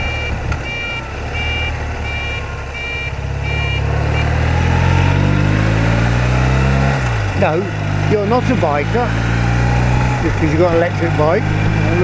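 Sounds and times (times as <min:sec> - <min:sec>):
reversing alarm beeping: 0:00.0 - 0:05.2
motorcycle engine: 0:00.0 - 0:12.0.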